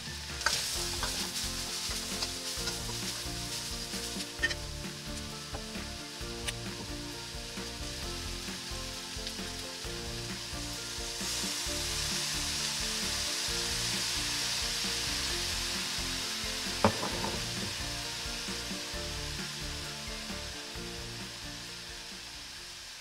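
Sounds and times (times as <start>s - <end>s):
sizzling in a wok: 0.0s - 23.0s
spatula stirring: 0.3s - 5.7s.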